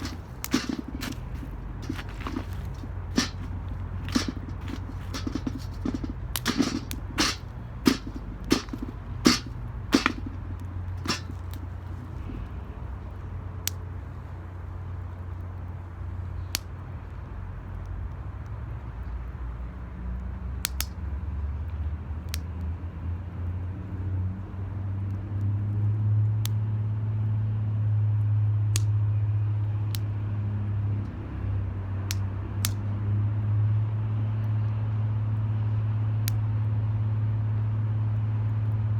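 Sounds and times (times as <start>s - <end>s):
wood fire crackling and popping: 0.0s - 12.0s.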